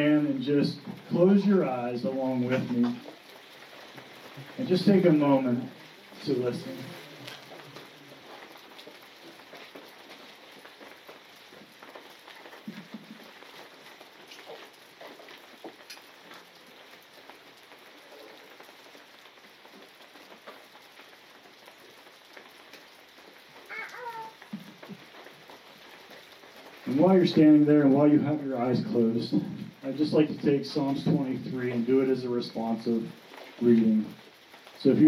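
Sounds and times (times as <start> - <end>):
creek water running: 0.0 - 35.0
faint ticks: 11.8 - 26.9.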